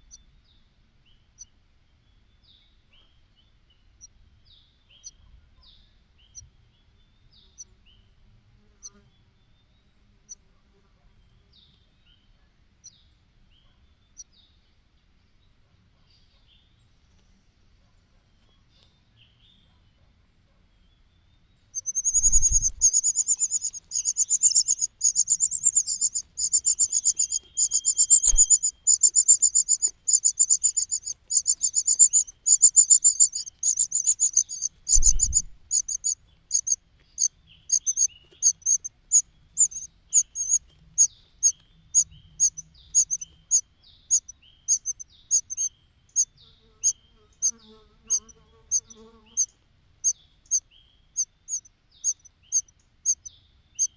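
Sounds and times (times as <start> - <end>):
nestling birds begging calls: 21.8 - 50.2
soft low thumps: 22.0 - 36.2.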